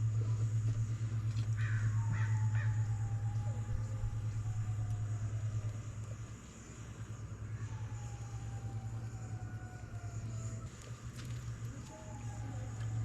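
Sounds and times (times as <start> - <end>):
steady low hum: 0.0 - 13.0
crow cawing: 1.5 - 3.0.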